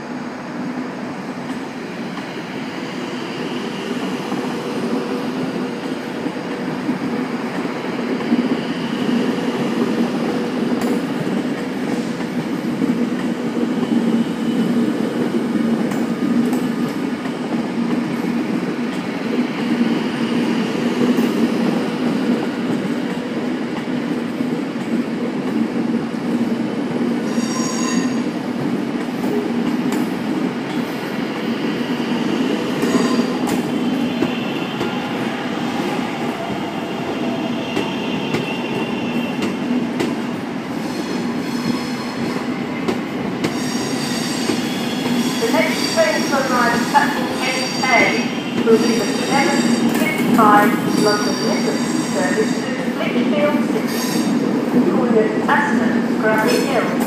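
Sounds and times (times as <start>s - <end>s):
train wheel squeal: 8.6s - 9.9s, 27.2s - 28.3s, 31.3s - 35.8s, 36.8s - 39.6s, 40.7s - 52.8s, 53.8s - 54.4s.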